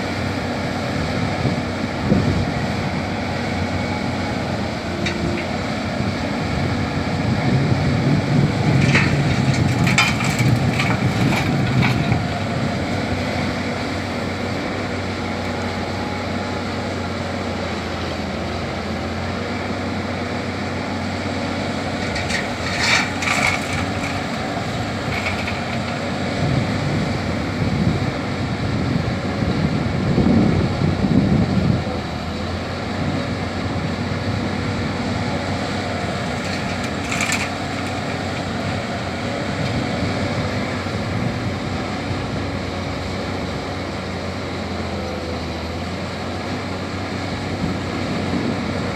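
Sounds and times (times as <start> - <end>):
excavator diesel engine running: 0.0 - 48.9
rough rumble: 0.0 - 48.9
metallic clanks: 4.9 - 5.7, 8.5 - 12.9, 21.9 - 26.2, 36.0 - 38.7.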